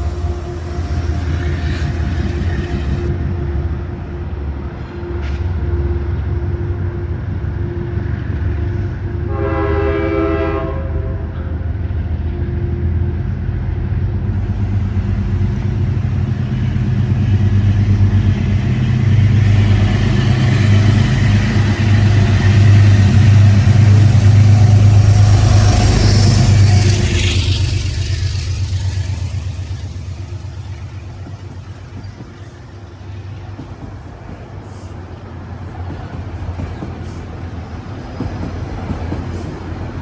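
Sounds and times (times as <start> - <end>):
train low rumble: 0.0 - 40.0
train horn blast: 8.5 - 11.7.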